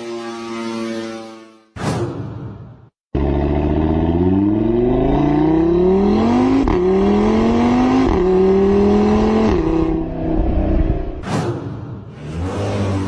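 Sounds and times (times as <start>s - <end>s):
car engine accelerating: 3.2s - 11.2s.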